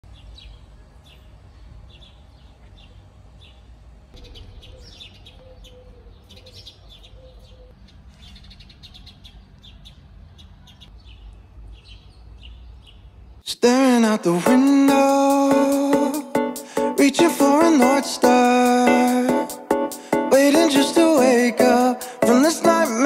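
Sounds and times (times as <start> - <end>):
small birds chirping: 0.1 - 13.5.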